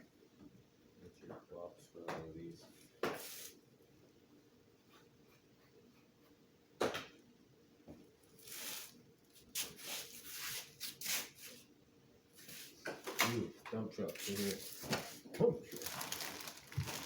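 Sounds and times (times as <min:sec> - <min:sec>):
rustling and scraping: 0:14.1 - 0:17.0.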